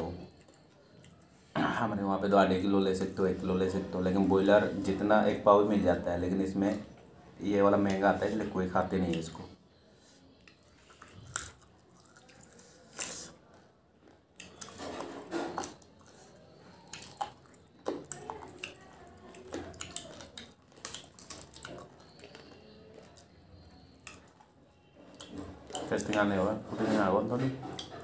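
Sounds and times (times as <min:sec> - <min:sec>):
lip smacks and sucking: 0:10.4 - 0:13.4
wet chewing and biting: 0:10.4 - 0:26.3.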